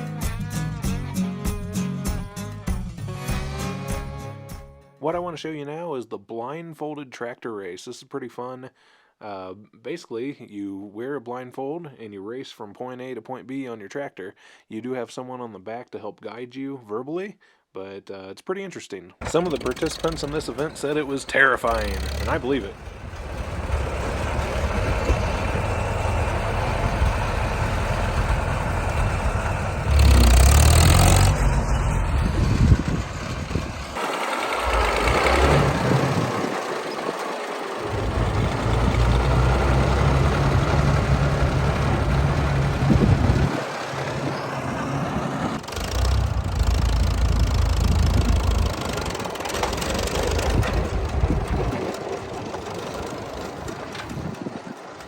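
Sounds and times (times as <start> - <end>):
rushing noise: 19.2 - 49.2
tractor engines running: 19.2 - 55.0.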